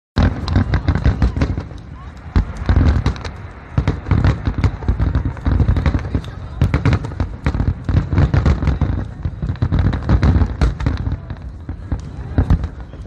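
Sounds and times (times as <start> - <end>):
fireworks bangs and crackles: 0.2 - 13.0.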